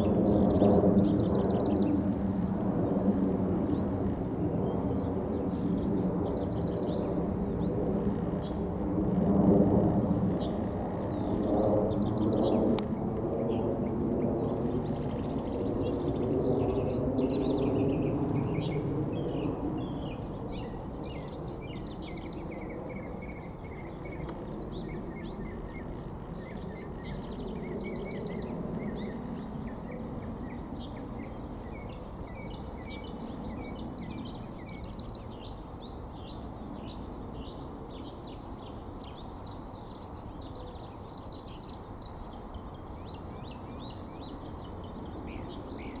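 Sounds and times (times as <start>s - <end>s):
small birds chirping: 0.0s - 2.0s, 2.7s - 46.0s
low outdoor rumble: 2.1s - 16.2s.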